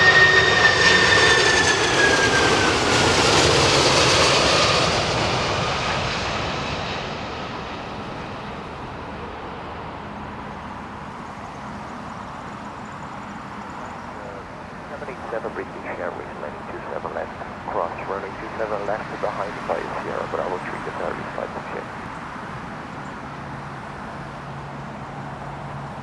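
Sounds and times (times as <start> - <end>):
jet airliner passing: 0.0 - 10.0, 14.1 - 22.3.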